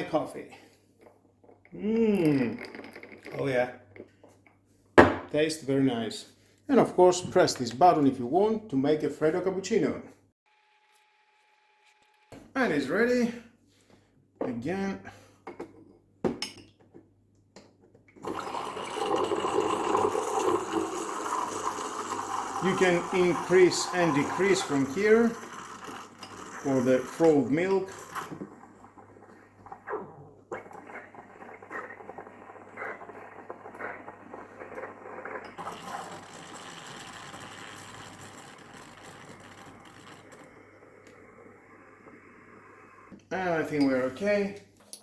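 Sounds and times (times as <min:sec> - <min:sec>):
steam wand hissing into milk: 0:18.2 - 0:28.6, 0:30.6 - 0:43.2.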